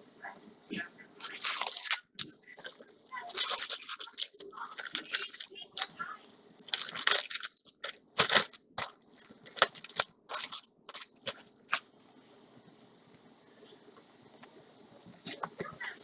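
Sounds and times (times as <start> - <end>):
packaging crinkling and tearing: 1.2 - 11.9.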